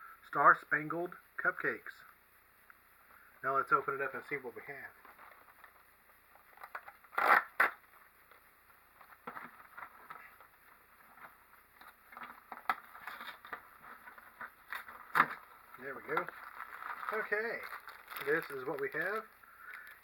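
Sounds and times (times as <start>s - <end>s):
packaging rustling: 4.9s - 20.0s
cardboard box tearing: 7.1s - 7.8s.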